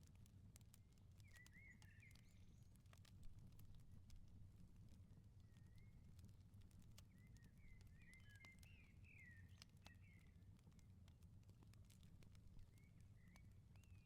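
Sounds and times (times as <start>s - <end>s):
wood fire crackling: 0.0s - 14.0s
small birds chirping: 7.0s - 10.4s.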